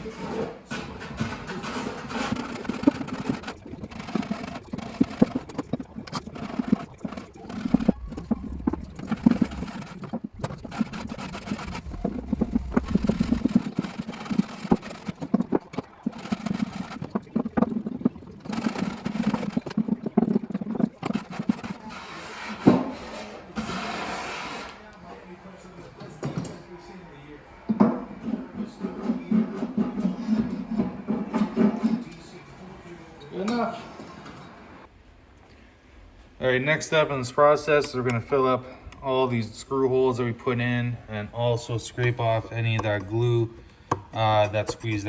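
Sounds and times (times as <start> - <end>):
scraping and clicks: 0.0 - 24.8, 42.2 - 45.0
hand plane shaving wood: 0.8 - 24.6.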